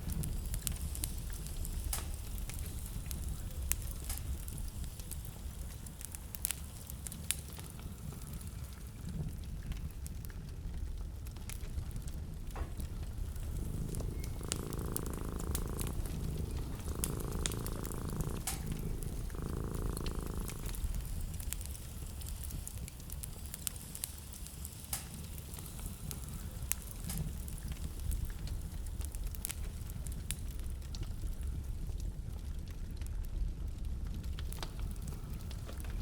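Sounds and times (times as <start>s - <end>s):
wood fire crackling: 0.0s - 36.0s
rough murmuring sounds: 11.6s - 22.2s.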